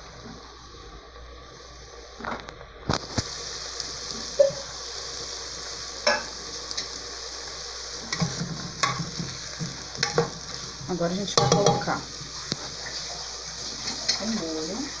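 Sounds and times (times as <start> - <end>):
food sizzling in a pot: 0.0 - 15.0
spoon knocking against pot: 11.4 - 12.0.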